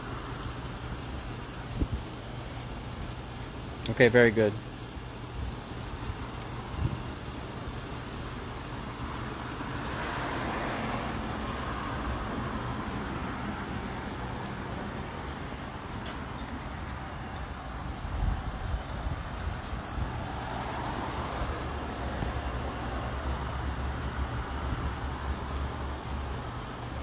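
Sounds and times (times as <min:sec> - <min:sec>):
road traffic rumble: 0:00.0 - 0:27.0
vehicle passing by: 0:09.7 - 0:15.2, 0:19.8 - 0:26.0.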